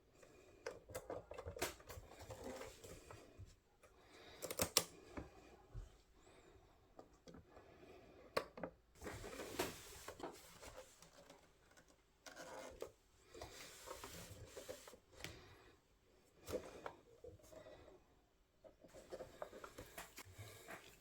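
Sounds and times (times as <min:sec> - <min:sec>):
hands rubbing and scraping parts: 0:09.0 - 0:15.1.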